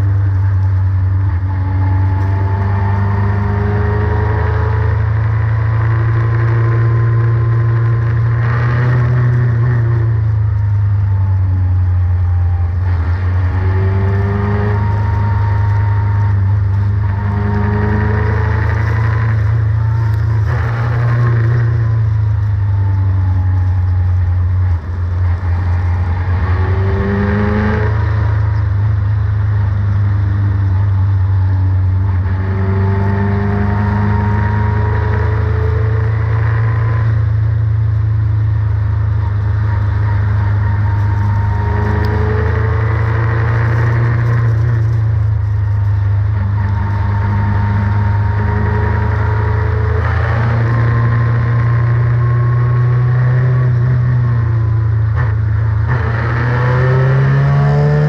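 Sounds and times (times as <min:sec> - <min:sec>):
race car engine accelerating: 0:00.0 - 0:58.0
low rumble: 0:05.0 - 0:33.8.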